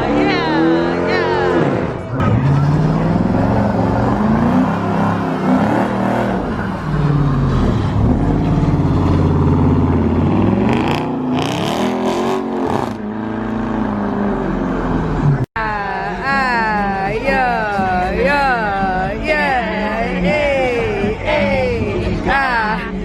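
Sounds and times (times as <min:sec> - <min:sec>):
car engine revving: 0:00.0 - 0:15.5.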